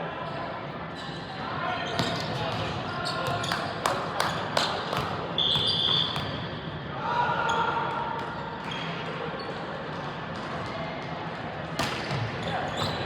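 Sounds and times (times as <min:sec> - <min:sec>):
sneaker squeaks: 0:00.9 - 0:06.5, 0:08.2 - 0:09.6, 0:11.8 - 0:13.0.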